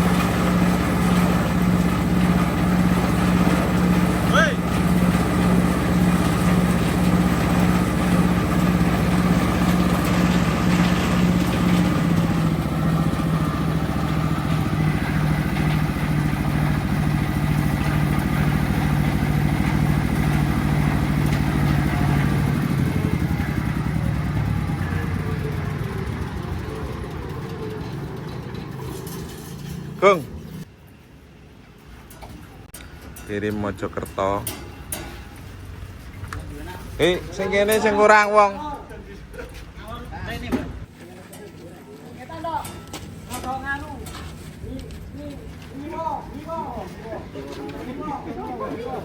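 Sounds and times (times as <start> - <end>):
diesel engine running: 0.0 - 30.7.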